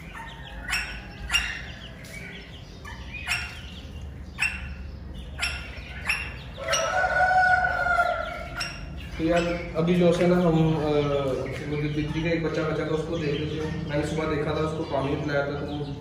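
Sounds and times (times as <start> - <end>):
small birds calling: 0.0 - 16.0
soft bird chirps: 0.0 - 16.0.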